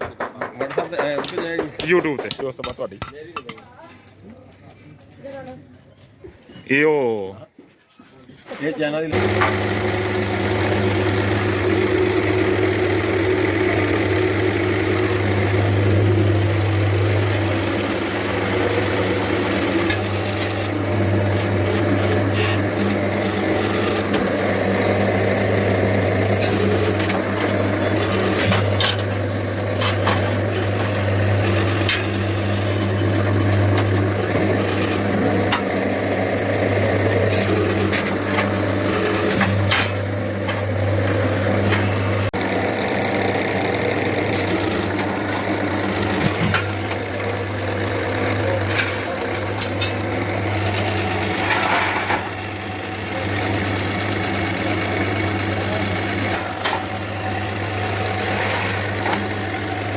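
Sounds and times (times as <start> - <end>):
clicks and knocks of work: 0.0 - 4.3, 9.1 - 59.9
low mechanical hum: 2.8 - 59.9.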